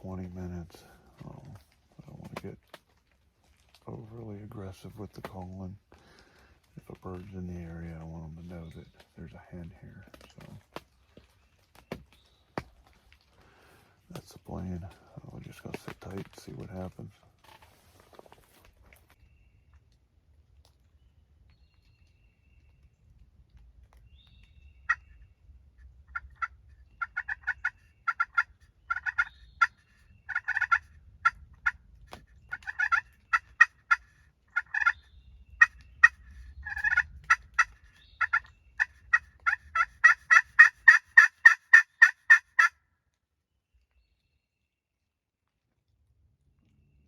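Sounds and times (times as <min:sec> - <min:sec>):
turkey yelps and clucks: 0:26.1 - 0:31.8, 0:32.4 - 0:35.0, 0:35.6 - 0:42.7.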